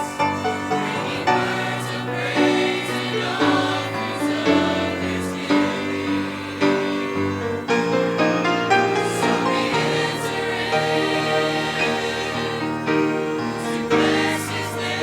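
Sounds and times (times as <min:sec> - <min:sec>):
choir singing in harmony: 0:00.0 - 0:15.0
musical accompaniment: 0:00.0 - 0:15.0.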